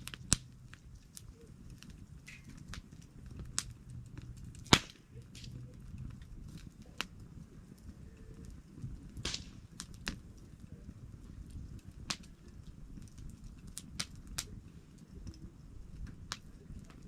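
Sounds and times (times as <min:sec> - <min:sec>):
campfire flame rushing: 0:00.0 - 0:17.0
fire crackles and pops: 0:00.0 - 0:17.0.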